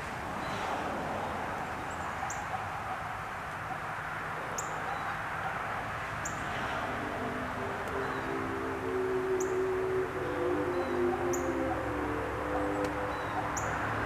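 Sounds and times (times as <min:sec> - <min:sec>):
outdoor background hiss: 0:00.0 - 0:14.0
bird chirping: 0:01.6 - 0:14.0
steady low tones: 0:06.2 - 0:14.0.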